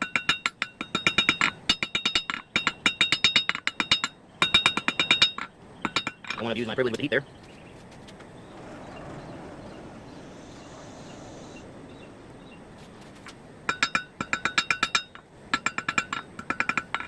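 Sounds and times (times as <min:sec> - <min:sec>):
steady low noise: 0:08.2 - 0:13.7.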